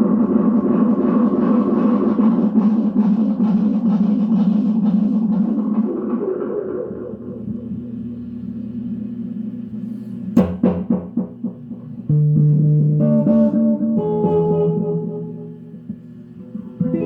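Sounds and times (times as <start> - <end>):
electric guitar with tape echo: 0.0 - 17.0.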